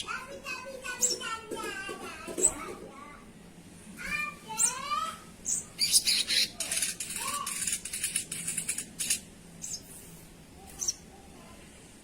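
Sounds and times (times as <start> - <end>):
bird chattering calls: 5.4 - 9.8.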